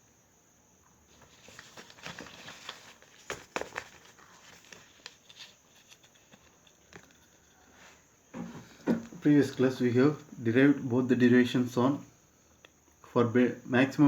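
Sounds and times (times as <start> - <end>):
faint rustling and scratching: 1.1 - 9.7.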